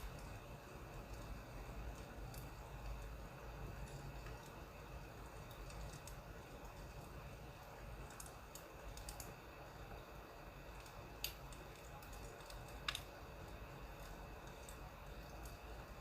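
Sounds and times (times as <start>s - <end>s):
firewood crackling: 0.0s - 16.0s.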